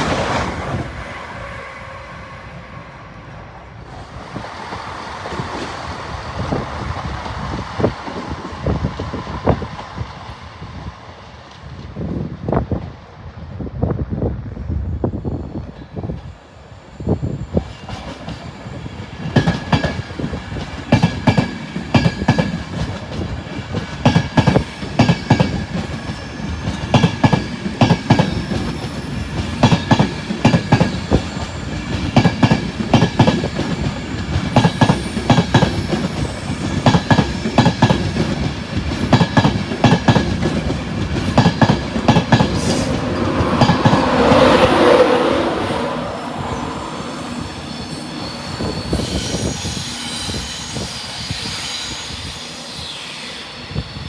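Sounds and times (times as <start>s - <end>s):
train wheels clattering over joints: 19.1s - 44.5s.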